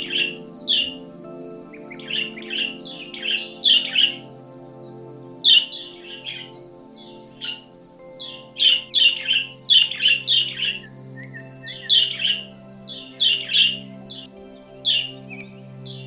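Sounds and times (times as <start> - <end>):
background music: 0.0 - 16.0
bird chirping: 0.0 - 16.0.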